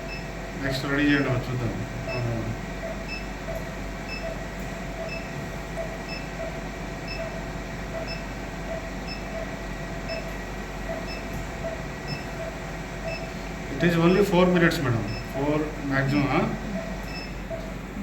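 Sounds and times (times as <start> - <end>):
equipment hum: 0.0 - 18.0
short electronic beeps: 2.1 - 4.4, 5.0 - 9.5, 10.1 - 10.3, 10.9 - 13.3, 15.0 - 15.4, 16.8 - 17.7.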